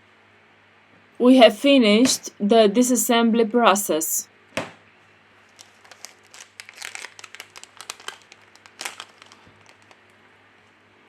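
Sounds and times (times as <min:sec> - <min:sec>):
plastic parts crinkling and clicking: 0:05.5 - 0:10.2.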